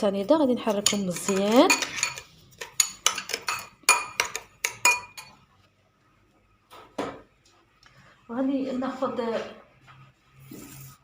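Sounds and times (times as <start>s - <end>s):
spoon clinking against bowl: 0.2s - 5.4s.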